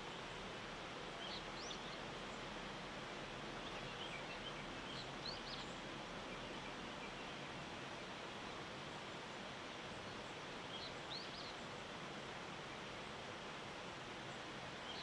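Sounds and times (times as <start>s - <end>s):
outdoor background hiss: 0.0s - 15.0s
small birds chirping: 1.1s - 2.5s, 3.6s - 7.6s, 9.3s - 13.1s, 14.2s - 15.0s.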